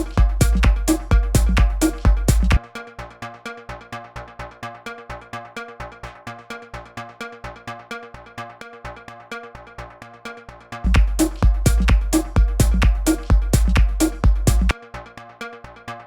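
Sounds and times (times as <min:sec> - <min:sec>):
heavy kick drum: 0:00.0 - 0:02.6, 0:10.8 - 0:14.8
synth and percussion pattern: 0:00.0 - 0:02.6, 0:10.8 - 0:14.8.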